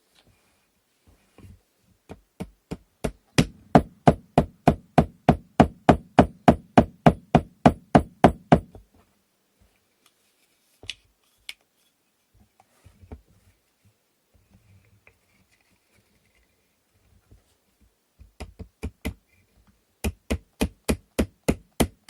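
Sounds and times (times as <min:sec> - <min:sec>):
hammer tapping wood: 0:02.1 - 0:08.8, 0:20.0 - 0:22.0.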